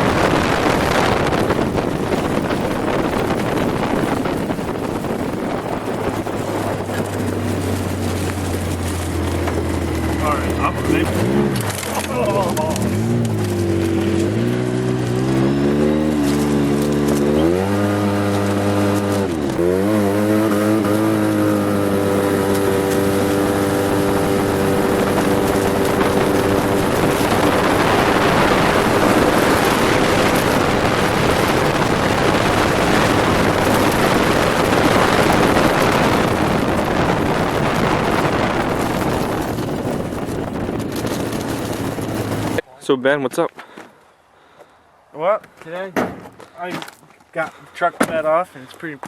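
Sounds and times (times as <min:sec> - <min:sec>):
pickup engine revving: 0:00.0 - 0:42.6.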